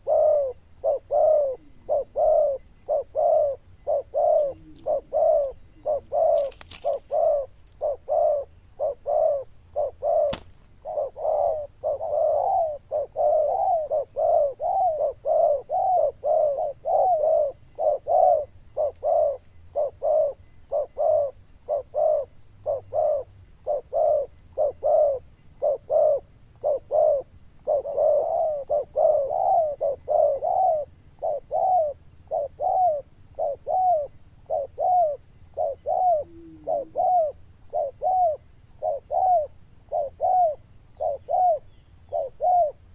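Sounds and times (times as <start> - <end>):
dove cooing: 0.0 - 42.9.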